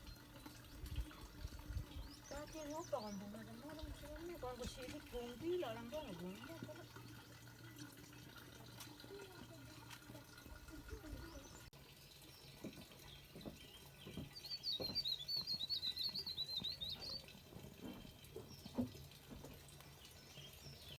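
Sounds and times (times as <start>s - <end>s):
songbird twittering: 12.3s - 17.3s
soft knocks: 12.6s - 15.1s.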